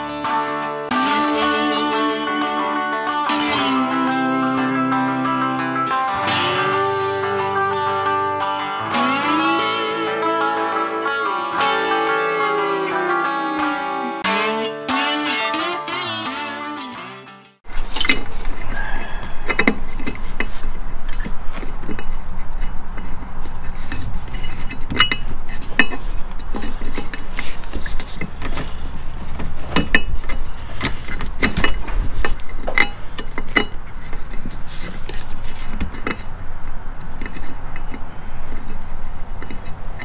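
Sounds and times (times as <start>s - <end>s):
metallic clinks of hand tools: 17.9s - 19.7s.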